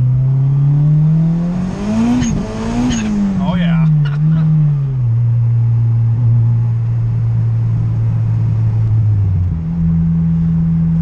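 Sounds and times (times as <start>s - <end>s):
car engine drone from cabin: 0.0s - 11.0s.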